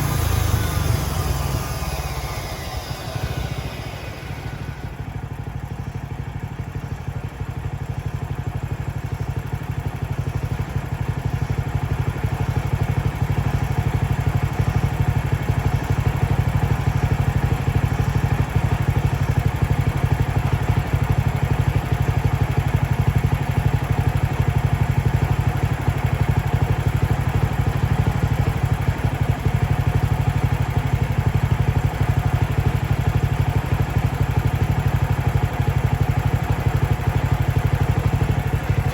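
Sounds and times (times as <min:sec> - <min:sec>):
sawmill gas engine running: 0:00.0 - 0:06.5, 0:08.4 - 0:38.9.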